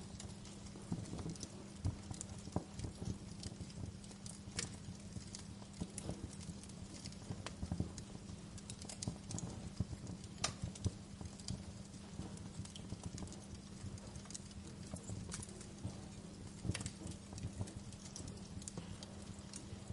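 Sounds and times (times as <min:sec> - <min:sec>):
fire popping: 0:00.0 - 0:19.9
low steady rumble: 0:00.0 - 0:19.9
wood fire crackling: 0:00.0 - 0:19.9.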